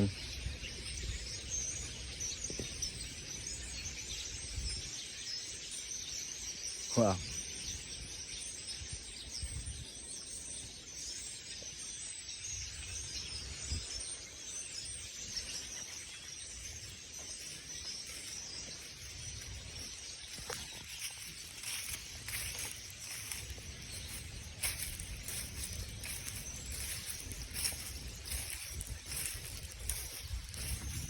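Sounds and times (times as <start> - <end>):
faint bird chirps: 0.0 - 31.0.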